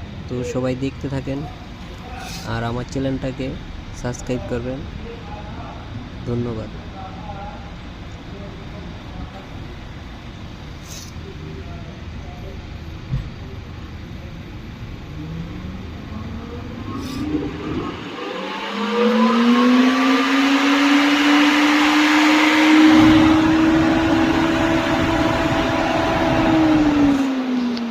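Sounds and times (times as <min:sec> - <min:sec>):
electric cooling fan whining: 0:00.0 - 0:27.9
rush of air from fan: 0:16.7 - 0:19.0.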